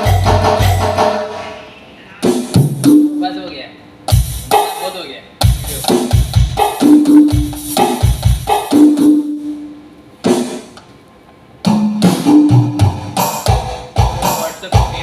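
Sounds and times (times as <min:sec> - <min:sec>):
electronic drum pad hits: 0:00.0 - 0:01.6, 0:04.1 - 0:10.8, 0:11.6 - 0:15.0.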